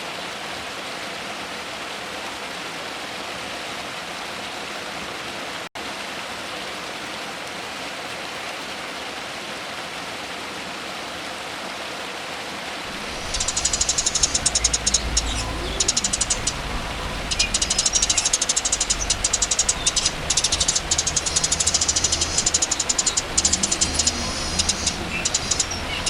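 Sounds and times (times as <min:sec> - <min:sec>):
rushing water-like hiss: 0:12.5 - 0:26.0
songbird chattering trill: 0:12.9 - 0:26.0.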